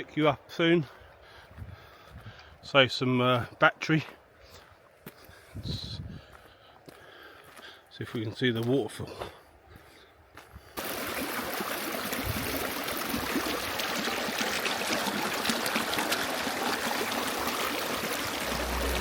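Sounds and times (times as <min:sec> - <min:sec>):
river water rushing: 0:10.8 - 0:19.0
music: 0:18.4 - 0:19.0.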